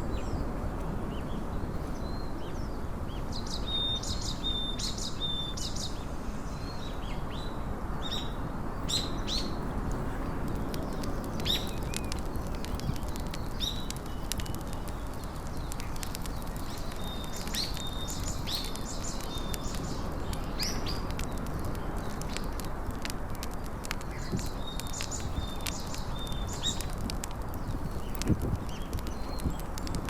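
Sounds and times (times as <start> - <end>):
low outdoor background noise: 0.0 - 30.0
small birds chirping: 0.0 - 30.0
faint clicks: 9.9 - 30.0.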